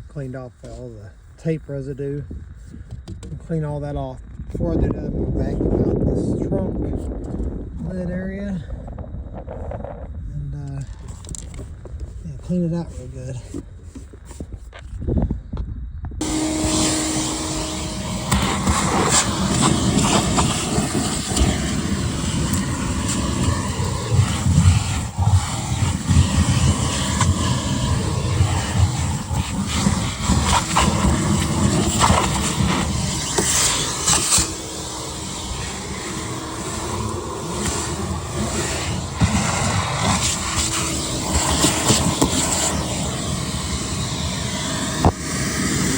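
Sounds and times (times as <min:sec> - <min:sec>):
debris rattling up nozzle: 0:16.2 - 0:43.8
vacuum cleaner running: 0:16.2 - 0:45.9.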